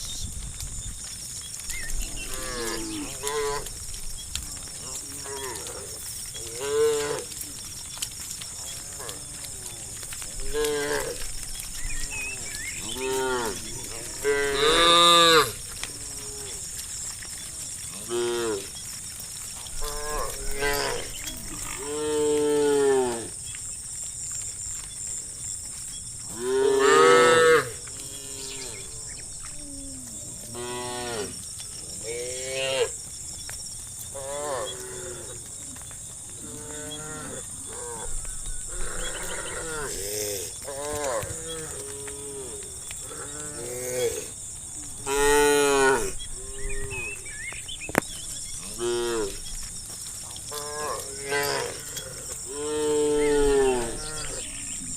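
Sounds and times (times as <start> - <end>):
cattle mooing: 12.3 - 16.6.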